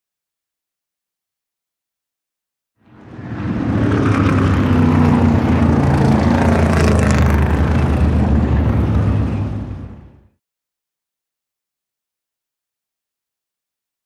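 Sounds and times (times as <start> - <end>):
rushing noise: 2.8 - 10.3
vehicle engine humming: 2.8 - 10.4.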